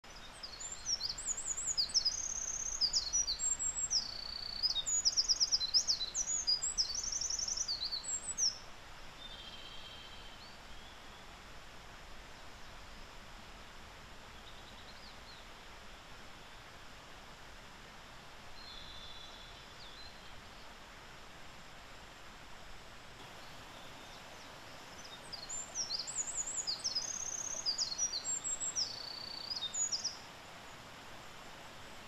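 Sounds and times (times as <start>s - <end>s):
outdoor background noise: 0.0s - 32.0s
faint distant bird notes: 23.2s - 32.0s
wren singing with trills: 25.0s - 30.2s.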